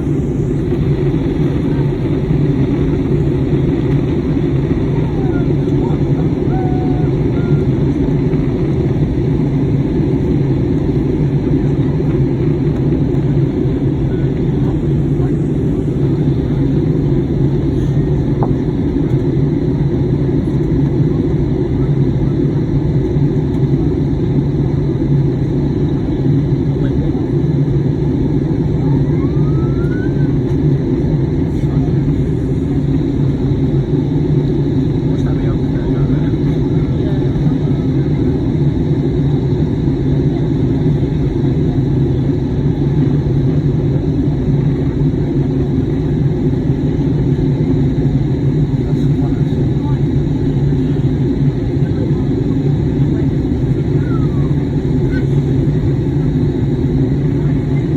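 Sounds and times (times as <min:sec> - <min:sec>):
aircraft cabin engine rumble: 0:00.0 - 0:57.9.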